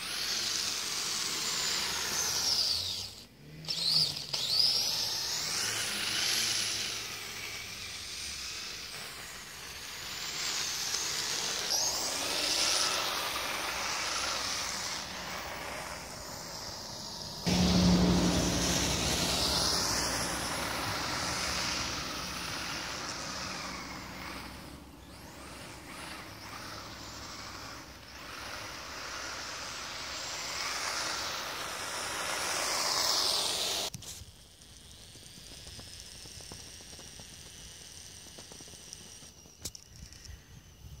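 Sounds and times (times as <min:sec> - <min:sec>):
electric motors whining: 0:00.0 - 0:41.0
low rumble: 0:15.1 - 0:24.6.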